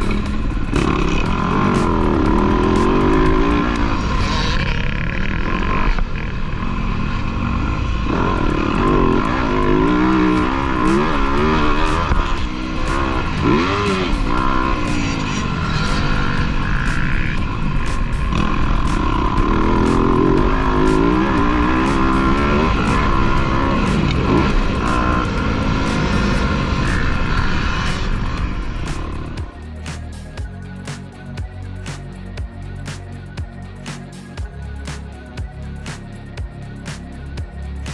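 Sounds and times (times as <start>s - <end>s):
dirt bike engines revving: 0.0s - 4.8s, 7.6s - 31.2s.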